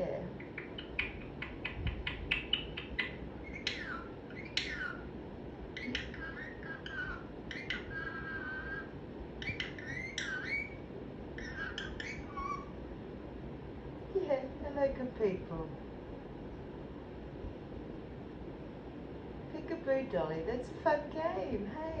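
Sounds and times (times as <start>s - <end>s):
parrot clicking: 0.4s - 4.8s
parrot squawking and whistling: 0.4s - 5.1s, 5.8s - 10.8s, 11.4s - 12.7s.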